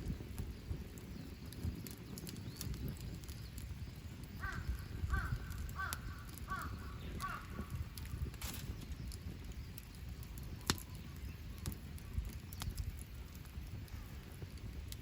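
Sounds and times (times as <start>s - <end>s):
campfire crackling: 0.0s - 15.0s
crow cawing: 4.4s - 7.7s.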